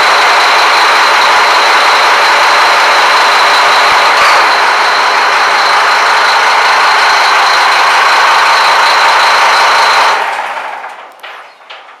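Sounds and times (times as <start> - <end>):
high whine: 0.0 - 10.5
marine diesel engines running: 0.0 - 12.0.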